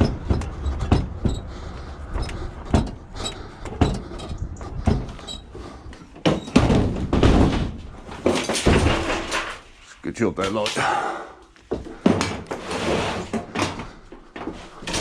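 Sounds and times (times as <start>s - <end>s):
metal dryer knocking and clunking: 0.0s - 9.6s
metal scraping clatter: 7.2s - 9.8s.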